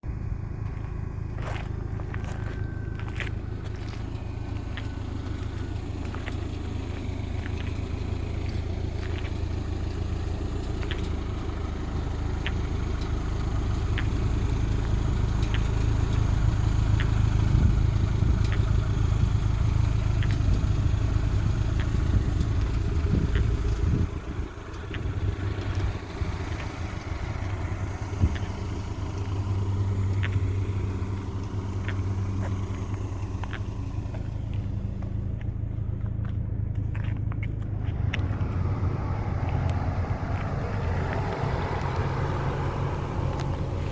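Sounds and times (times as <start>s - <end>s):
vehicle engine idling: 0.0s - 43.9s
faint sharp ticks: 12.3s - 16.3s, 39.5s - 42.3s.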